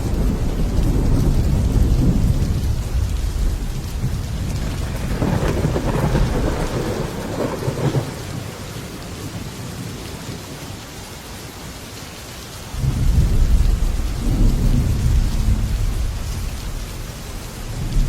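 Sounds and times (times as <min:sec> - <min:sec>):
rolling thunder: 0:00.0 - 0:08.6, 0:12.8 - 0:18.0
heavy rain on a metal roof: 0:00.0 - 0:18.0.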